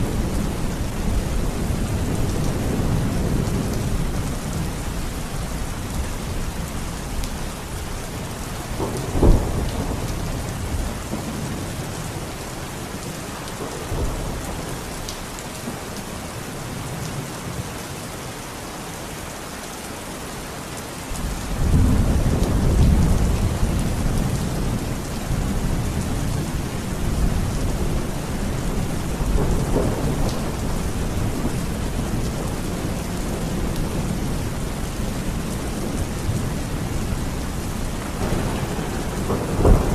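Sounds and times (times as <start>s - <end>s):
heavy rain: 0.0s - 39.9s
deep rolling thunder: 8.7s - 12.3s, 21.5s - 39.9s
sharp thunder crack: 38.2s - 39.9s.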